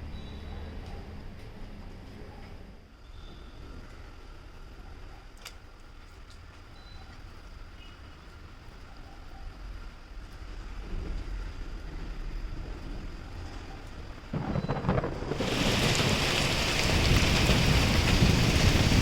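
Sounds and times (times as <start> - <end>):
heavy rain hiss: 10.2 - 19.0
rolling thunder: 10.7 - 19.0.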